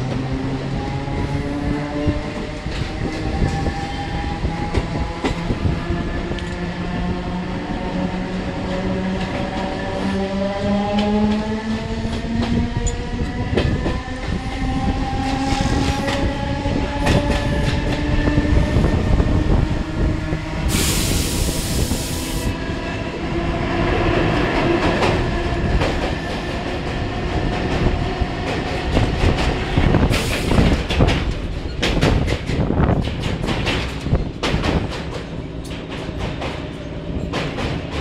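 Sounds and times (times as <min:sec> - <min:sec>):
hiss: 0:20.7 - 0:22.5, 0:30.1 - 0:30.8
train wheels clattering over rail joints: 0:24.5 - 0:38.0.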